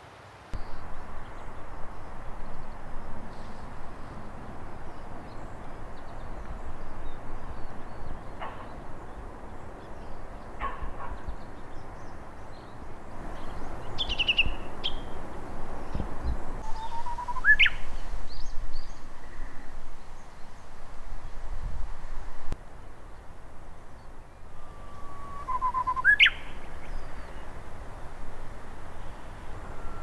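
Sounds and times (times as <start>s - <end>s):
bird calls: 0.6s - 15.2s, 15.8s - 20.6s, 24.3s - 27.6s, 29.0s - 30.0s.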